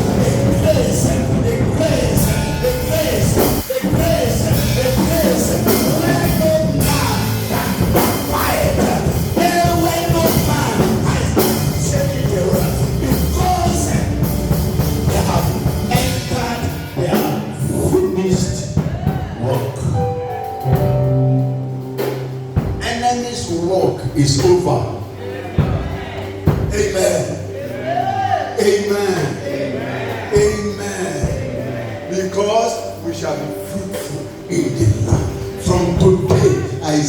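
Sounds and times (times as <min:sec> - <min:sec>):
person singing: 0:00.0 - 0:14.2
drum kit: 0:00.0 - 0:23.1
band music: 0:00.0 - 0:37.0.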